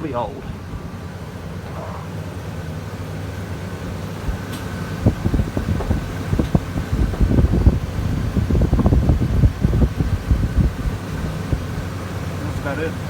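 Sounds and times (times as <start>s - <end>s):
gusty low rumbling: 0.0s - 2.0s, 4.2s - 12.6s
refrigeration fans humming: 0.0s - 13.0s.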